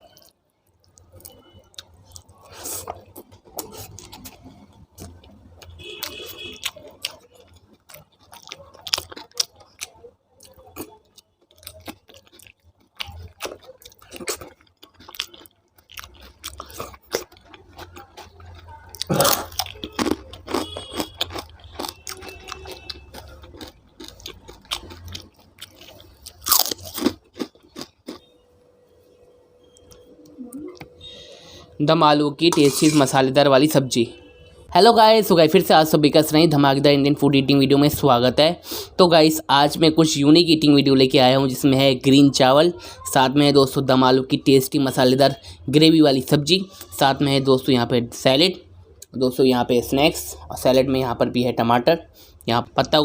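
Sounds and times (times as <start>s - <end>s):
person chewing and crunching food: 0.0s - 28.4s.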